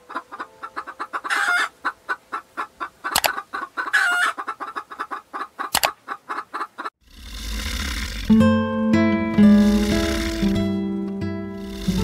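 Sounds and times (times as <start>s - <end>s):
chickens clucking: 0.0s - 7.0s
sharp clicks: 3.1s - 3.4s, 5.7s - 6.0s.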